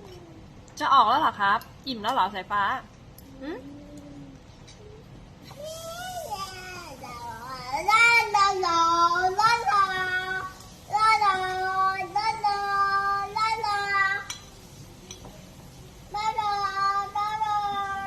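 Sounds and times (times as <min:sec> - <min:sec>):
child singing: 0:05.6 - 0:14.3, 0:16.1 - 0:18.0.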